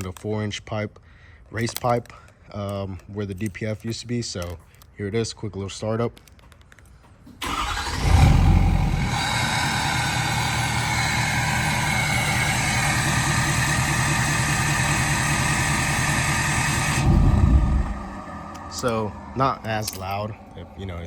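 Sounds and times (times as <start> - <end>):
diesel engine starting and idling: 7.3 - 21.0
starter cranking: 7.4 - 20.3.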